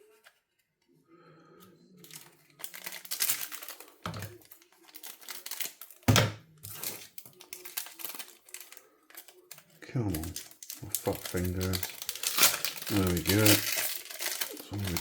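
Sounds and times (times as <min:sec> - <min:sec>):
foil wrapper crinkling: 0:02.0 - 0:06.1, 0:06.7 - 0:15.0.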